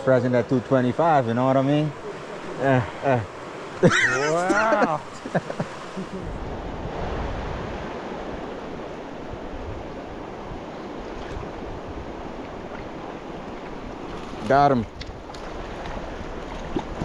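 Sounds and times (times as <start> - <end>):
wind buffeting the microphone: 5.0 - 17.0.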